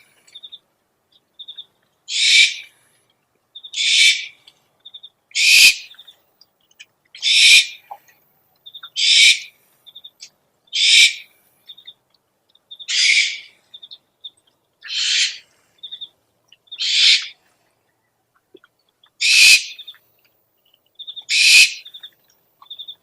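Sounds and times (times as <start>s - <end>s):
owl screeching: 2.1s - 2.7s, 3.8s - 4.4s, 5.4s - 5.9s, 7.2s - 7.8s, 9.0s - 9.5s, 10.8s - 11.3s, 12.9s - 13.6s, 14.8s - 15.5s, 16.8s - 17.4s, 19.2s - 19.8s, 21.3s - 21.9s.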